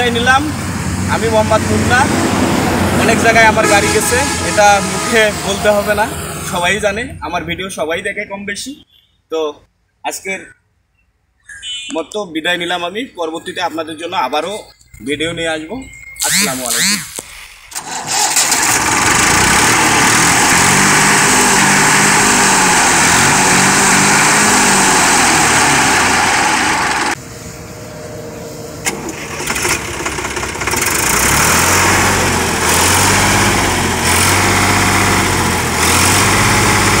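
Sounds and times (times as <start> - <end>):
tractor engine running: 16.2 - 37.0.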